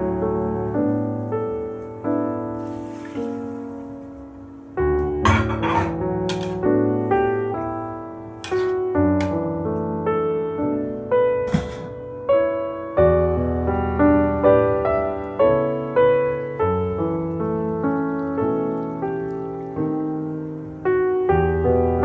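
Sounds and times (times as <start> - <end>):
solo piano music: 0.0 - 22.0
metal spatula scraping wok: 5.3 - 6.4.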